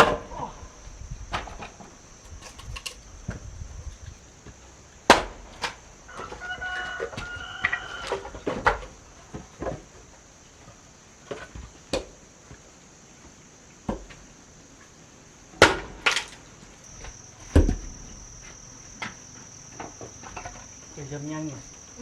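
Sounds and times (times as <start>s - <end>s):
high insect buzz: 0.0s - 13.4s, 14.3s - 22.0s
wood being struck: 16.9s - 20.7s.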